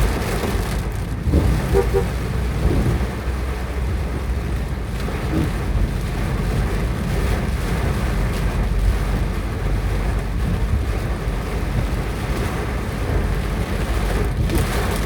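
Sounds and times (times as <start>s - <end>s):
wind buffeting microphone: 0.0s - 4.3s
hard rain and hail: 0.0s - 15.0s.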